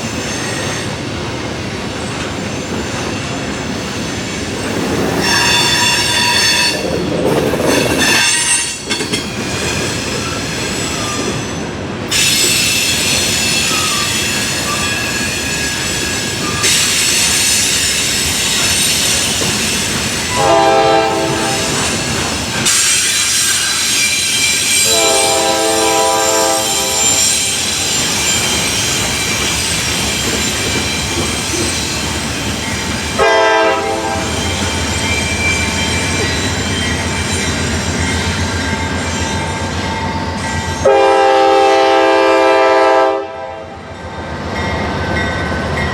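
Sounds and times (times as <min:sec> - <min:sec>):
train wheels squealing on rail: 0:00.0 - 0:42.6
locomotive horn: 0:20.3 - 0:22.0, 0:24.8 - 0:27.4, 0:33.2 - 0:34.4, 0:40.8 - 0:43.8.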